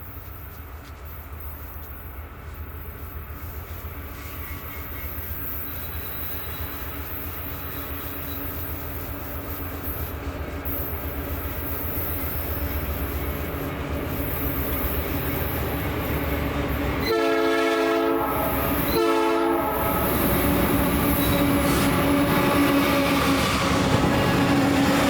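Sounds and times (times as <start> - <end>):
train rumble: 0.0 - 25.0
locomotive air horn: 17.0 - 25.0.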